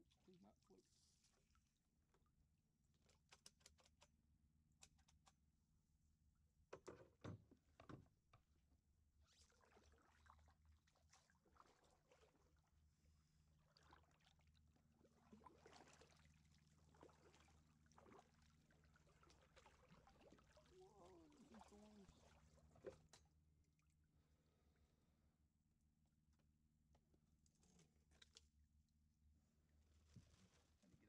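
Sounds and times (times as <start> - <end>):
soft paddle splashes: 9.2 - 23.3.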